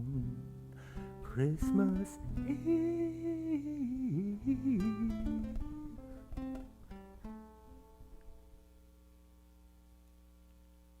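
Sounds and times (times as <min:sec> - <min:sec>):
acoustic guitar picking: 0:00.0 - 0:08.7.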